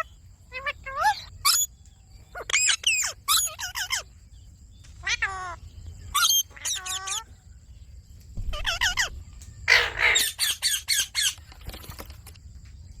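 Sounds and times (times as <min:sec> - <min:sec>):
parrot squawking and chirping: 0:00.0 - 0:01.7, 0:02.3 - 0:04.1, 0:05.0 - 0:07.3, 0:08.4 - 0:11.4.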